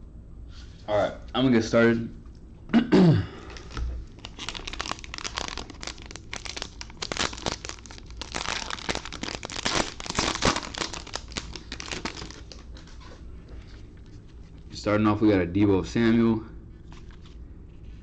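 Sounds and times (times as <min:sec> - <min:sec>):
plastic wrapping torn and crinkled: 0:03.6 - 0:13.0.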